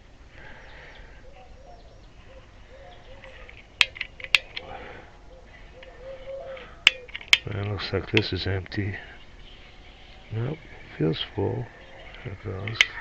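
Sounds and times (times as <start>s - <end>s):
metallic clicks and clinks: 3.2s - 4.7s, 6.5s - 8.3s, 12.6s - 13.0s.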